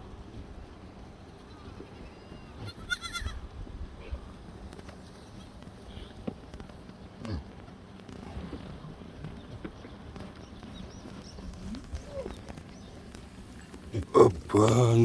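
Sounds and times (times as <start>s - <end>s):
goat bleating: 2.6s - 3.4s.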